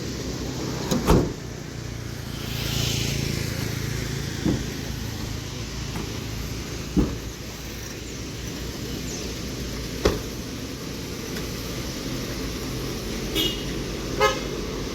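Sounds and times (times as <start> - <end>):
vehicle passing: 0.0 - 8.0.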